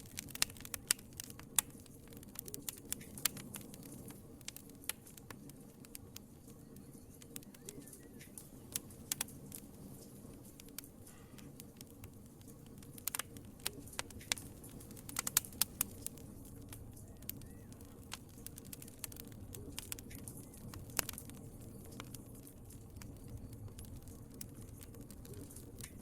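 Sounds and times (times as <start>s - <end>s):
low steady fire rumble: 0.0s - 26.0s
wood fire crackling and popping: 0.0s - 26.0s.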